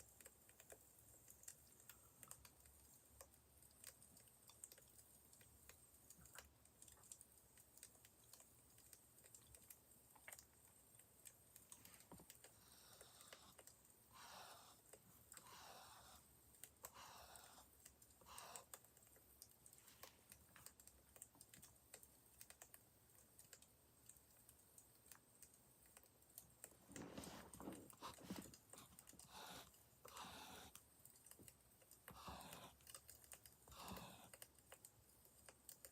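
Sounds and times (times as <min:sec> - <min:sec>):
soft rustling: 0:26.7 - 0:30.6.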